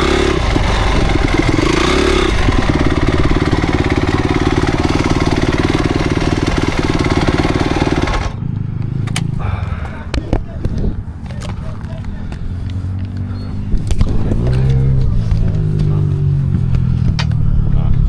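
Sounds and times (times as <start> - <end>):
motocross engine running: 0.0 - 8.5.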